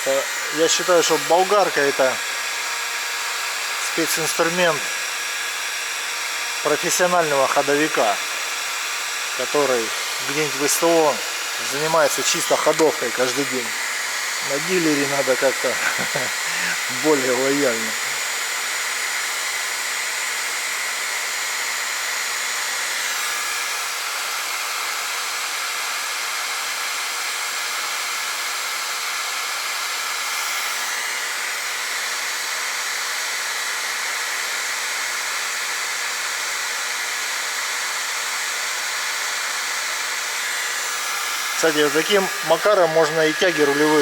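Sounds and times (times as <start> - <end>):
heating tool blowing hiss: 0.0 - 24.8, 37.7 - 44.0.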